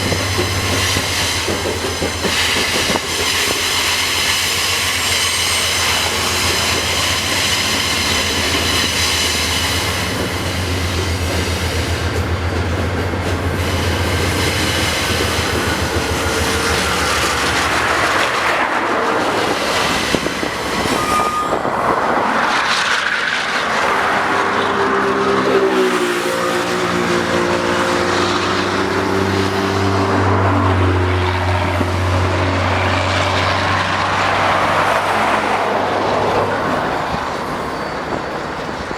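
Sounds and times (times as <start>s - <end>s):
diesel locomotive humming: 0.0s - 38.9s
high-pitched wheel squeal: 3.2s - 9.0s, 20.4s - 22.0s, 36.5s - 38.9s.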